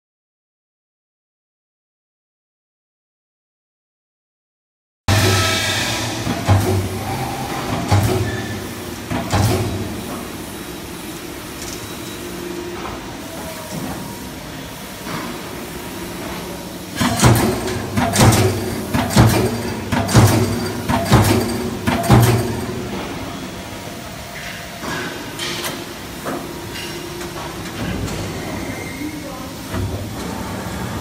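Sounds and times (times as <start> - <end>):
punch press punching sheet metal: 5.1 - 10.1, 17.0 - 23.3
machine running: 5.1 - 24.6.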